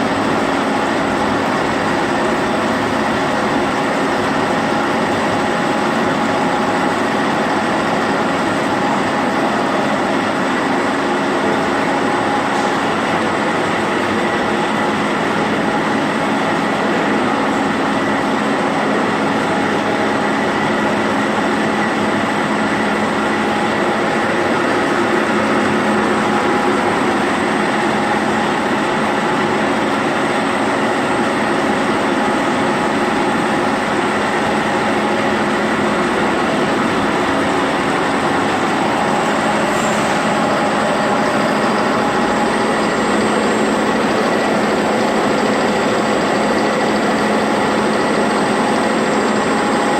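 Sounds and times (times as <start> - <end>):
machine hum of steady tones: 0.0 - 49.9.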